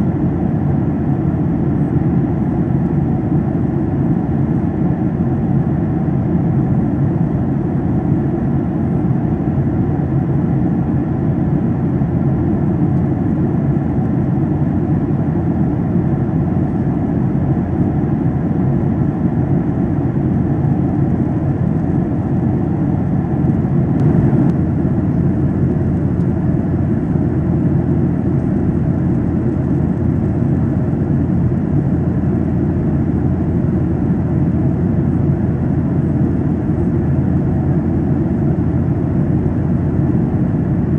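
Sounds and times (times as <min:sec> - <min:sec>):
jet engine roar in cabin: 0:00.0 - 0:40.9
airflow past fuselage: 0:23.9 - 0:24.8.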